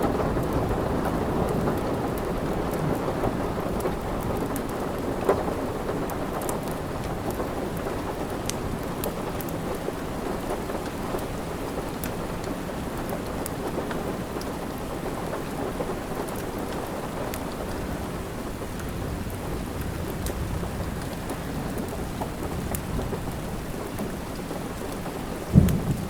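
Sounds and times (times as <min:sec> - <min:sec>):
steady rain: 0:00.0 - 0:26.0
wood fire crackling: 0:03.8 - 0:26.0.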